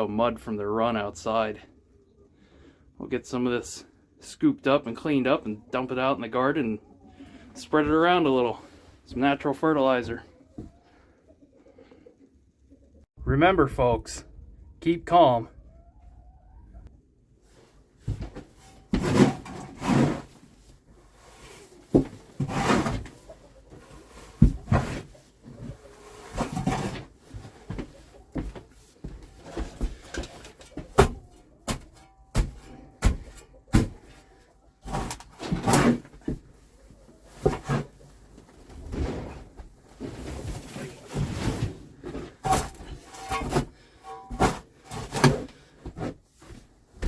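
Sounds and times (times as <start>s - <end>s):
shovel scraping wooden floor: 18.1s - 20.4s, 21.1s - 23.2s, 23.9s - 27.8s, 34.8s - 36.1s, 37.4s - 38.0s, 38.8s - 46.6s.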